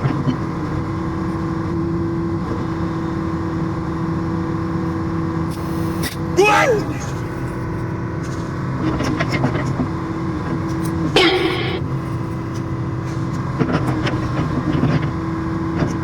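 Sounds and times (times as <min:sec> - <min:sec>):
heavy diesel engine droning: 0:04.2 - 0:13.6.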